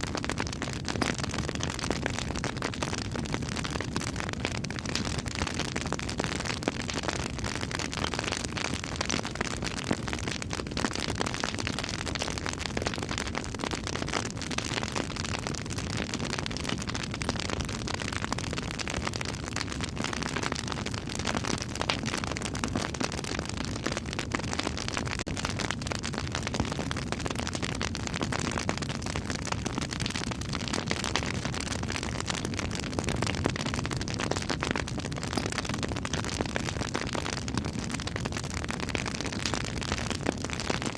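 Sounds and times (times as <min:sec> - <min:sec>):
campfire burning: 0:00.0 - 0:40.9
crackles and pops of burning wood: 0:00.1 - 0:40.9.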